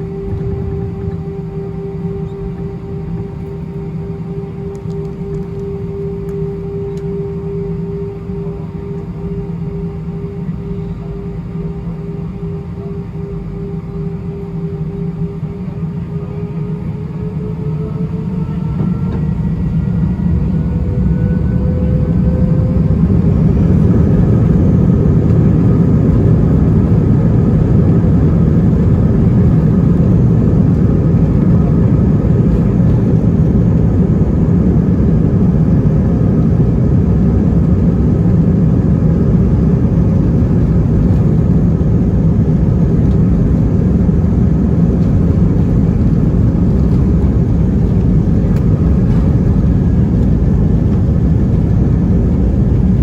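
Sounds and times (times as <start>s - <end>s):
faint steady tones: 0.0s - 41.7s
airliner cabin noise: 0.0s - 53.0s.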